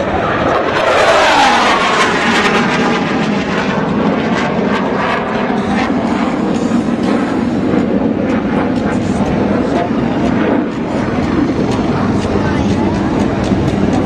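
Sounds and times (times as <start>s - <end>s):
military aircraft flying low: 0.0s - 14.0s.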